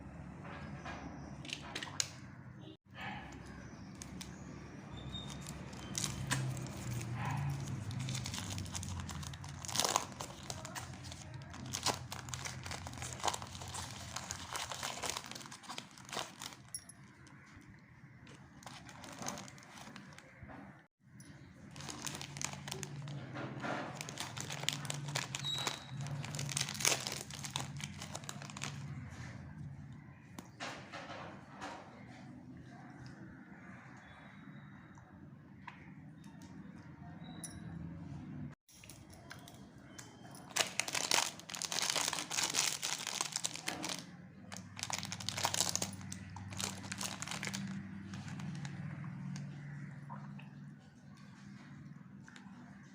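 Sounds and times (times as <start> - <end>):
wrappers crinkling and tearing: 3.9 - 4.4, 5.0 - 16.8, 18.5 - 20.4, 21.6 - 29.1, 40.4 - 49.4.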